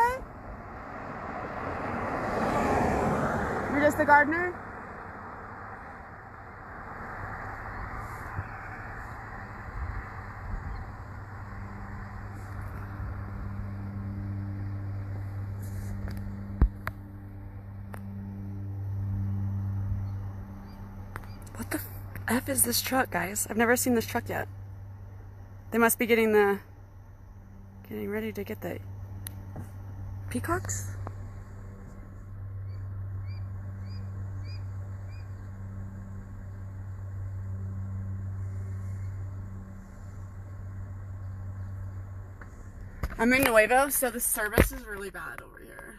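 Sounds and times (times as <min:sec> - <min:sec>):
vehicle engine idling: 0:00.0 - 0:45.9
bird chirping: 0:19.6 - 0:21.6, 0:32.6 - 0:35.6.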